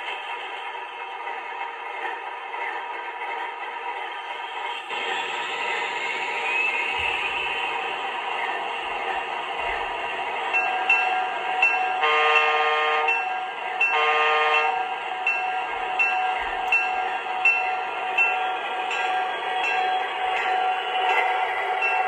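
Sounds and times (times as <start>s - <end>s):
turbine whine: 4.0s - 11.8s
locomotive horn blasts: 12.0s - 13.2s, 13.9s - 14.8s.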